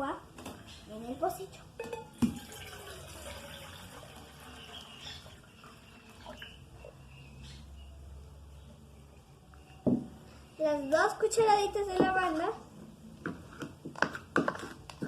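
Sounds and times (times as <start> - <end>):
water pouring into pot: 2.1 - 6.7
knock: 9.9 - 10.1.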